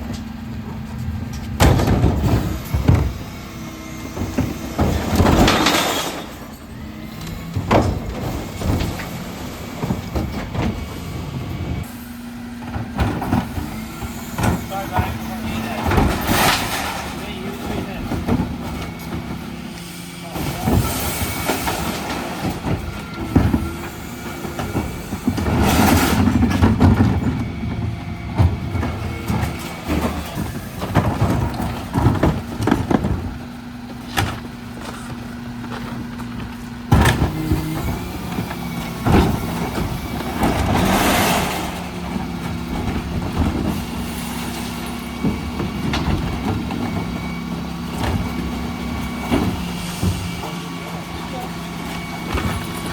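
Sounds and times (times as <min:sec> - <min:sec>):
refuse lorry running: 0:00.0 - 0:52.9.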